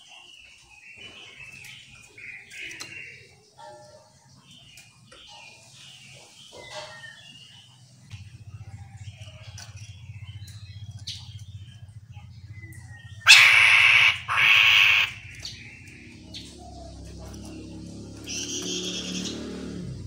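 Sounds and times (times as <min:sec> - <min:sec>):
loud harsh bird calls: 0:00.0 - 0:20.0
low pulsing hum: 0:08.0 - 0:18.3
bird chirps and whistles: 0:12.6 - 0:15.6.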